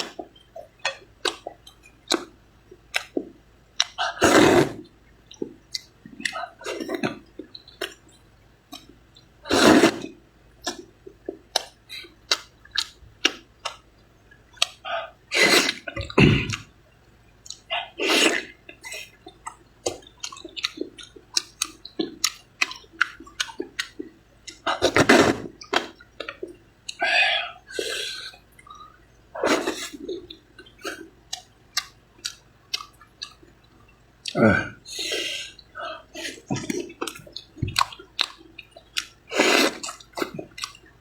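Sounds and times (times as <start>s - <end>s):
person chewing noodles: 0.0s - 16.8s, 17.4s - 41.0s
loud noodle slurps: 4.0s - 4.8s, 9.5s - 10.1s, 15.3s - 16.6s, 18.0s - 18.5s, 24.7s - 25.9s, 29.4s - 30.1s, 39.3s - 40.0s.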